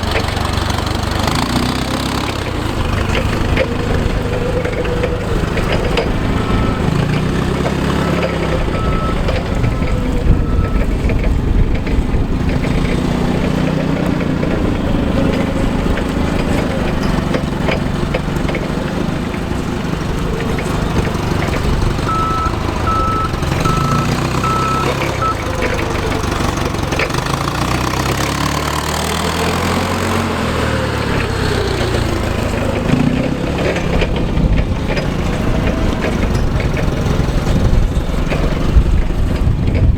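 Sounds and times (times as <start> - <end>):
forklift engine running: 0.0 - 39.9
backup alarm beeping: 6.1 - 11.0, 22.0 - 25.9.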